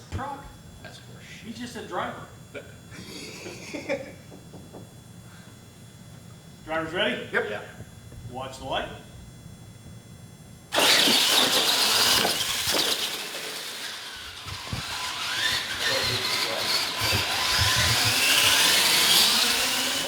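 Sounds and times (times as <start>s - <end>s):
motor whine rising in pitch: 10.7s - 20.0s
rc truck motors and tyres: 10.7s - 20.0s.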